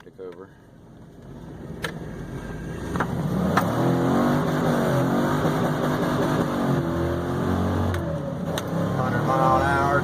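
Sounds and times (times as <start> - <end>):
engine revving high: 2.8 - 10.0.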